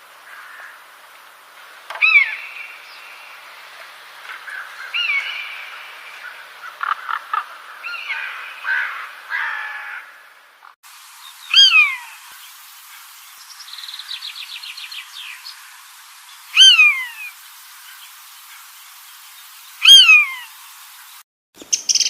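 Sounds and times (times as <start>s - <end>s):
bird calling: 1.9s - 3.3s, 4.3s - 10.2s, 11.2s - 20.6s.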